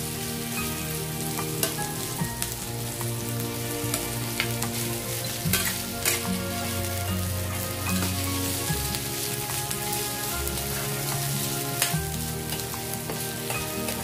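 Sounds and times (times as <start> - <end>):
vegetables sizzling in hot oil: 0.0 - 14.0
spatula stirring and scraping: 3.9 - 14.0.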